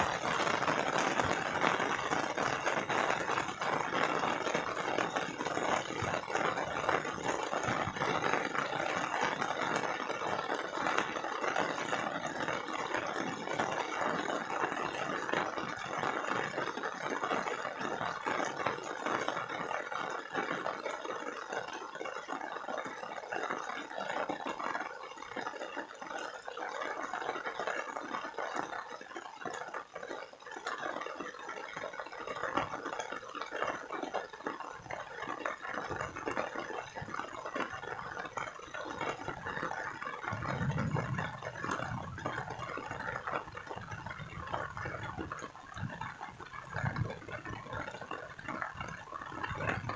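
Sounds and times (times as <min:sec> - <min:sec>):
rain falling: 0:00.0 - 0:49.9.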